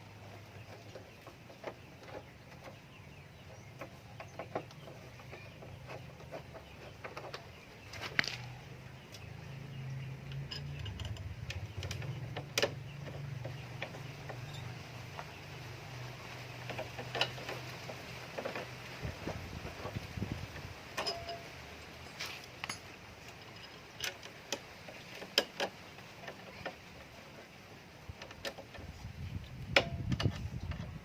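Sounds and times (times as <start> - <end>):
tools and metal parts clicking: 3.4 - 8.6, 9.8 - 18.8, 19.8 - 27.5, 28.1 - 31.0.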